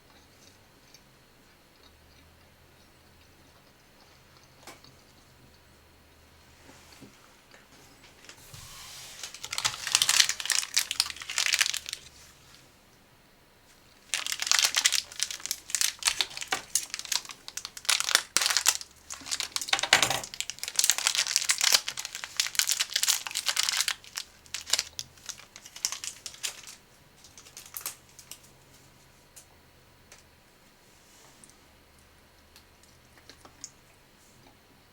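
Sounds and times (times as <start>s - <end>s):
plastic packaging crinkling: 8.2s - 12.5s, 14.0s - 28.5s.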